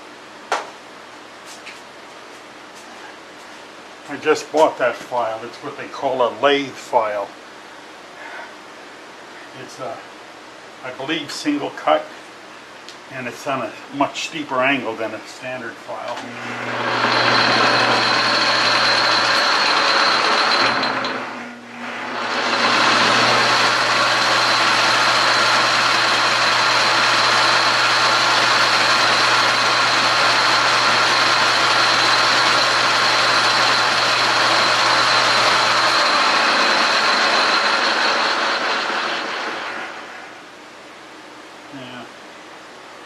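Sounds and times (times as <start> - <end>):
metal lathe humming: 16.2 - 40.3
file rasping on spinning metal: 16.5 - 21.3, 22.0 - 39.6.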